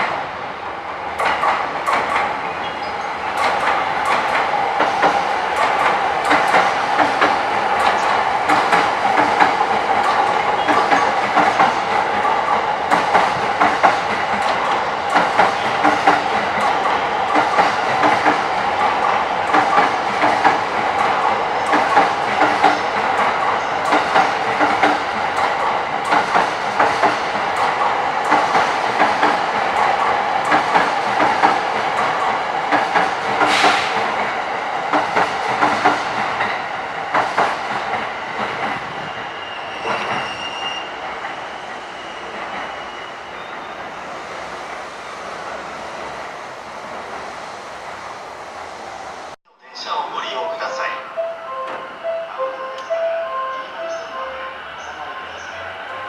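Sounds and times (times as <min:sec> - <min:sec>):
train wheels clacking over rail joints: 0:01.2 - 0:02.4, 0:03.3 - 0:39.0
high squeal of train wheels: 0:02.5 - 0:03.2, 0:07.8 - 0:12.4, 0:37.8 - 0:44.8, 0:50.6 - 0:56.0.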